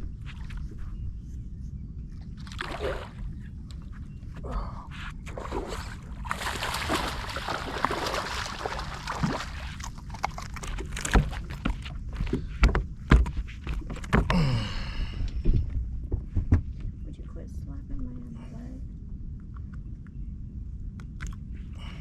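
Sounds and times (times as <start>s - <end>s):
steady low rumble: 0.0s - 22.0s
water splashing and sloshing: 2.2s - 3.9s, 5.1s - 14.3s.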